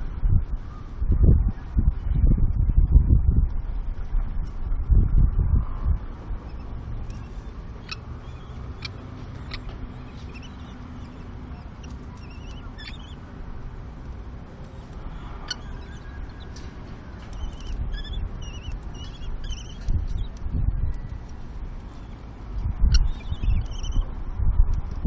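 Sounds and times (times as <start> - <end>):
wind on microphone: 0.0 - 25.0
kestrel chicks squeaking: 6.3 - 24.3.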